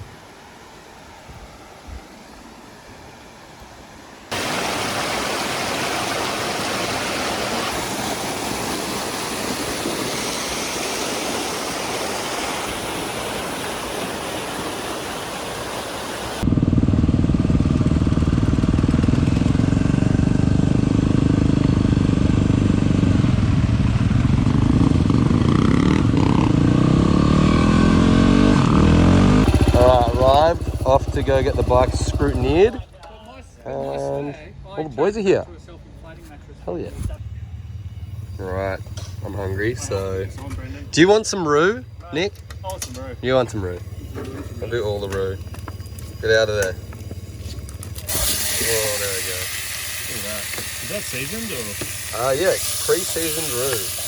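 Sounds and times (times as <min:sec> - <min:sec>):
motorcycle engine running: 0:16.4 - 0:32.9, 0:37.0 - 0:54.0.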